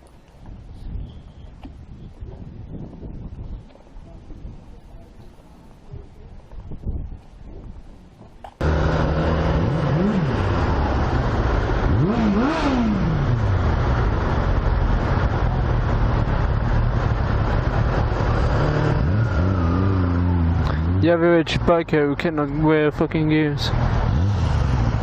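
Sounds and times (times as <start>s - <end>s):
vehicle engine starting and revving: 8.6s - 21.7s, 23.6s - 25.0s.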